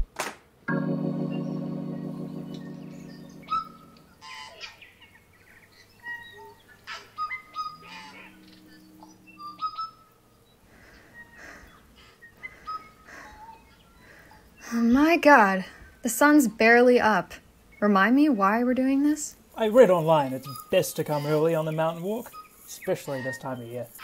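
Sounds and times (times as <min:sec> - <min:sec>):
organ chord: 0:00.7 - 0:04.5
birds chirping and whistling: 0:01.2 - 0:14.7, 0:19.9 - 0:24.0.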